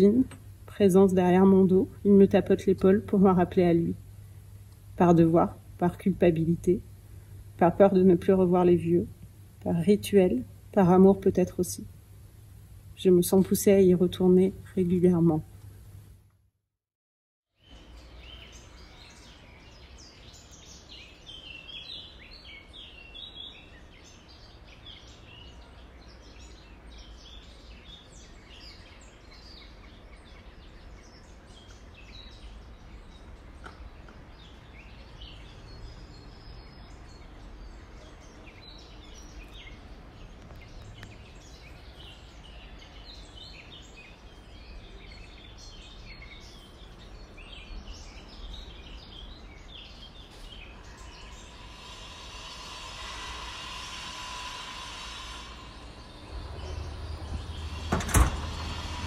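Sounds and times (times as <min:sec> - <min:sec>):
small birds chirping: 0:17.6 - 0:59.0
low background rumble: 0:55.1 - 0:59.0.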